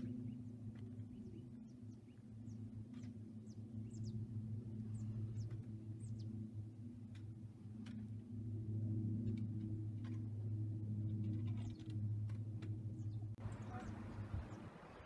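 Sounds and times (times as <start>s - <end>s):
bird chirping: 0.0s - 4.2s, 13.0s - 15.0s
steady low hum: 0.0s - 15.0s.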